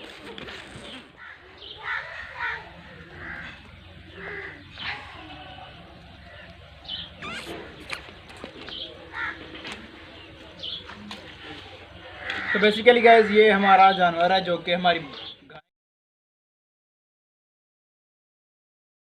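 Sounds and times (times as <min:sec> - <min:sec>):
birds chirping: 0:00.0 - 0:15.7.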